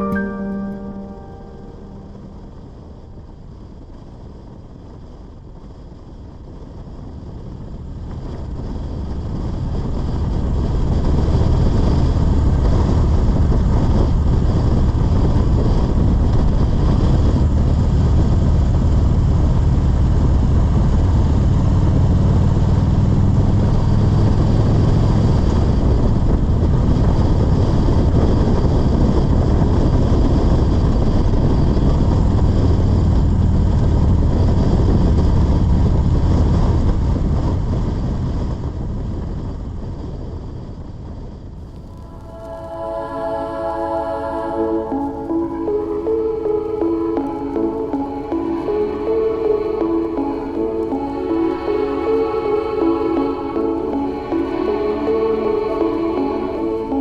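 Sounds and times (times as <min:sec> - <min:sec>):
road and wind noise: 0:03.1 - 0:43.2.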